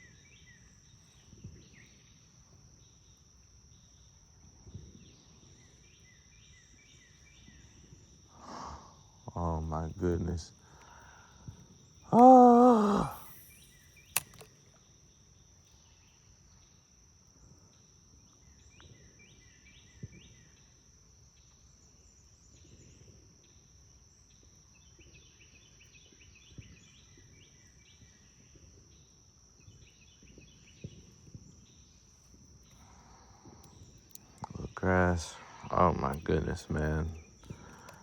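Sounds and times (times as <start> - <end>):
insects chirping: 0.0 - 38.0
faint ticks: 10.5 - 14.9, 37.3 - 38.0
sharp click: 12.8 - 14.8.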